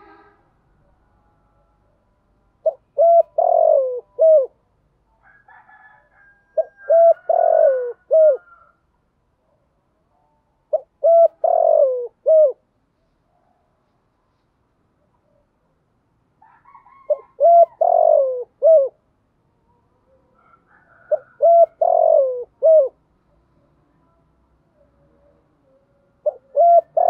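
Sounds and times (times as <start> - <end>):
dove cooing: 2.6 - 4.6, 6.6 - 8.7, 10.7 - 12.6, 16.7 - 19.0, 20.4 - 23.0, 26.2 - 27.0.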